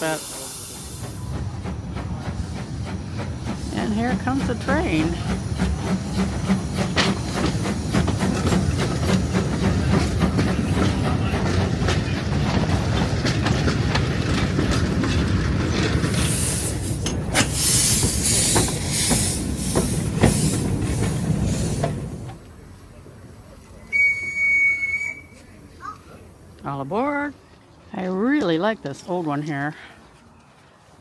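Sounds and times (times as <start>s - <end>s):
steam hissing in pulses: 0.0s - 1.6s, 16.0s - 22.2s
wheels clicking on track: 0.0s - 28.7s
steam train rumbling past: 0.0s - 29.8s.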